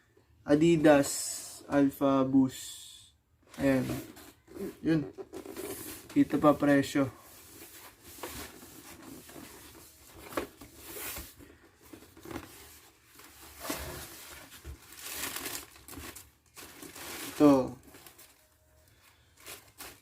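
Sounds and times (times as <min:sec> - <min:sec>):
paper crinkling and rustling: 0:07.5 - 0:20.0.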